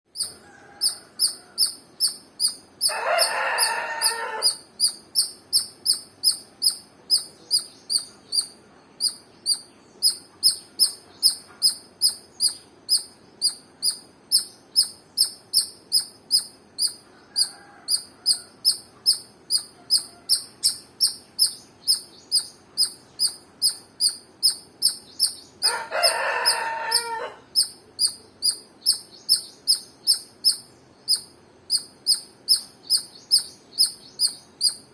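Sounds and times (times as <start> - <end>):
squirrel chirping: 0.1 - 34.9
rooster crowing: 0.2 - 2.2, 2.8 - 4.7, 17.1 - 18.9, 19.6 - 20.8, 25.6 - 28.1.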